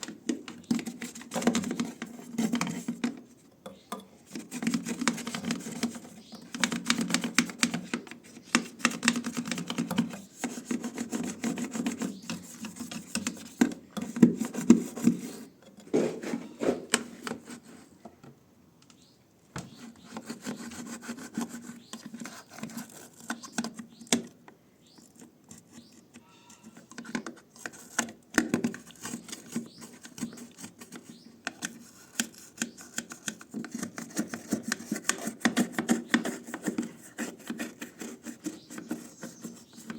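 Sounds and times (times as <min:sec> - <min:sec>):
scrubbing against a surface: 0:14.3 - 0:17.9.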